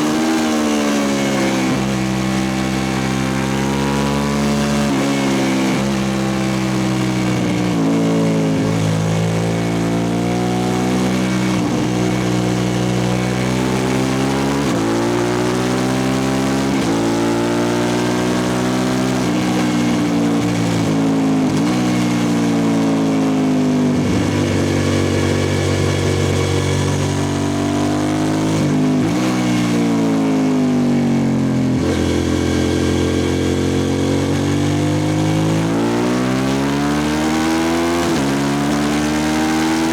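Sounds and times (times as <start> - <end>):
motorcycle engine running loud: 0.0 - 39.9.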